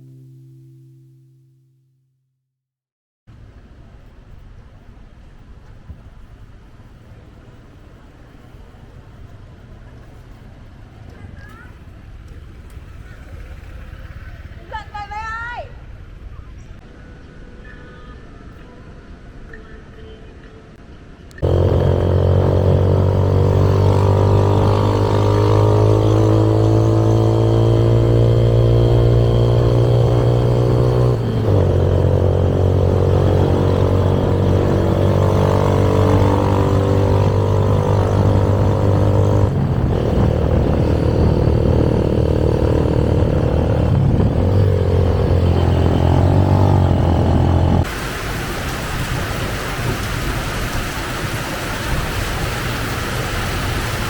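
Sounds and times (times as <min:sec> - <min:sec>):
motorbike engine revving: 0:21.4 - 0:48.1.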